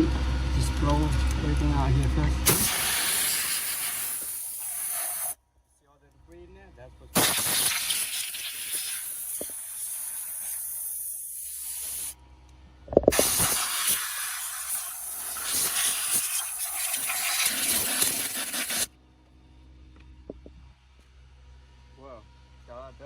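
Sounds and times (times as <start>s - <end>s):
compressed air hissing: 2.4s - 5.4s, 7.2s - 12.2s, 13.1s - 18.9s.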